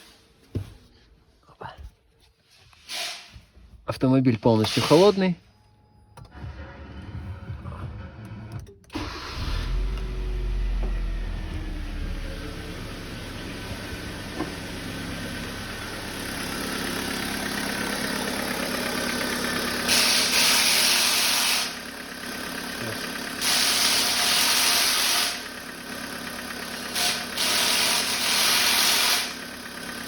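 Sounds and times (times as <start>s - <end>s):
car engine idling with ticking: 10.0s - 19.9s, 21.7s - 23.4s, 24.6s - 28.6s, 29.3s - 30.0s.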